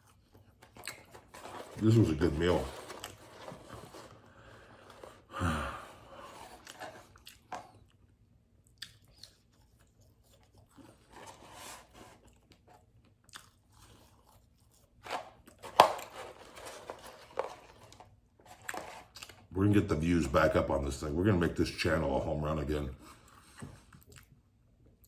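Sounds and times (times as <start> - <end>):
man chewing food: 0.0 - 1.6, 6.0 - 15.6, 17.6 - 19.5, 23.0 - 25.0.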